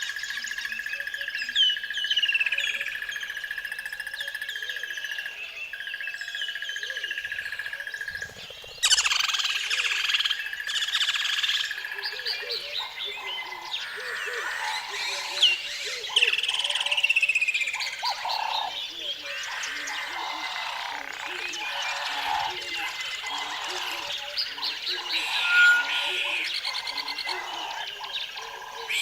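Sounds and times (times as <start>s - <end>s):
birds chirping: 4.2s - 29.0s
high-pitched trill: 23.8s - 27.6s.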